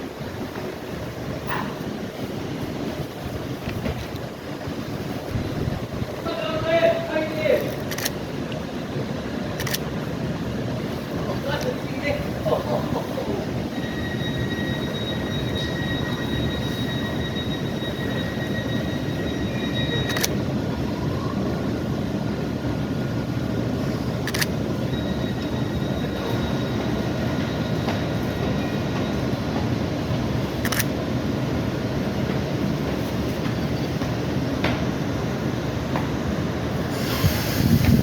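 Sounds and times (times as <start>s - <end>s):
train rumbling: 0.0s - 38.0s
sharp clicks: 7.6s - 8.2s, 30.6s - 30.9s
high-pitched whine: 13.6s - 21.7s, 24.3s - 30.8s.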